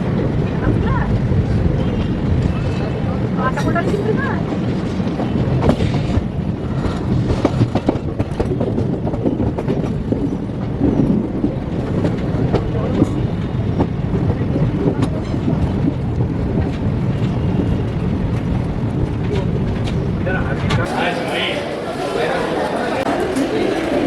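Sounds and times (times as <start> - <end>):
train coach rumble: 0.0 - 24.0
wheels clicking over rail joints: 0.2 - 20.9.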